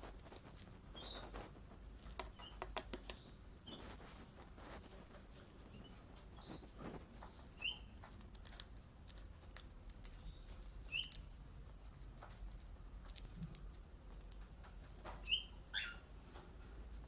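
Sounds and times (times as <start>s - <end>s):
high bird chirps: 1.0s - 1.3s, 7.6s - 8.0s, 10.2s - 11.2s, 14.8s - 16.1s.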